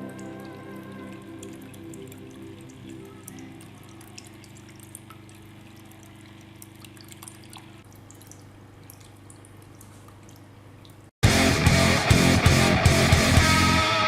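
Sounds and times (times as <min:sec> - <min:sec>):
low steady hum: 0:00.0 - 0:11.1
water trickling and dripping: 0:00.0 - 0:11.1.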